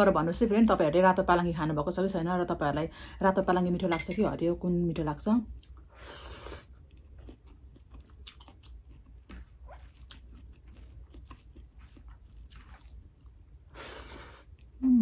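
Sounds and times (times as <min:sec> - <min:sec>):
person chewing wetly: 0:06.4 - 0:13.8.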